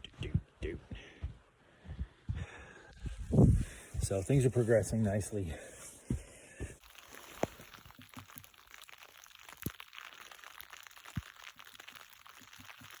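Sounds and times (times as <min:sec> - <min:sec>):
snow crunching: 0:06.8 - 0:08.0.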